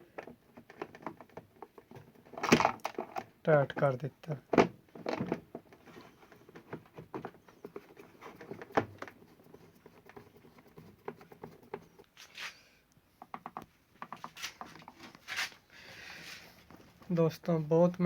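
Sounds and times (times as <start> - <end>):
plastic parts clicking and tapping: 0.0 - 12.1, 13.2 - 15.1.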